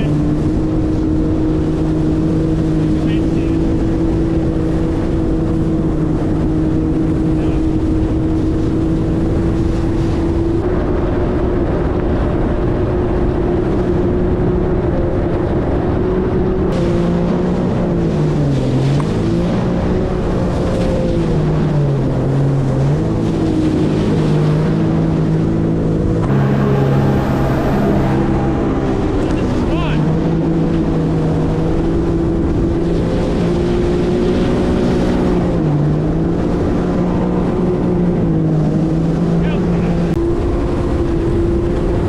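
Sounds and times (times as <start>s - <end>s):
jet ski engine running: 0.0s - 42.0s
water and wind rushing: 0.0s - 42.0s.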